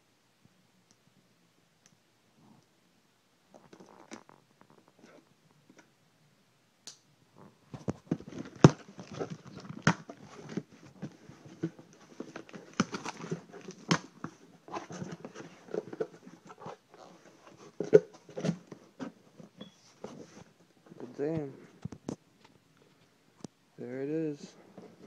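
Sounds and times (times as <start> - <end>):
cardboard tearing and scraping: 8.2 - 16.7.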